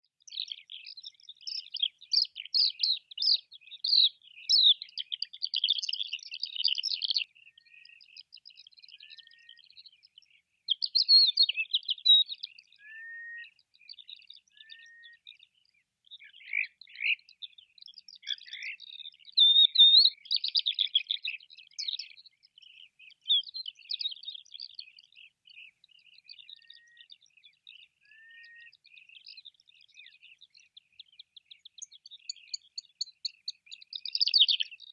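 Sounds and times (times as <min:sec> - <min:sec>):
bird rapid high chirping: 0:00.3 - 0:07.2, 0:31.6 - 0:34.9.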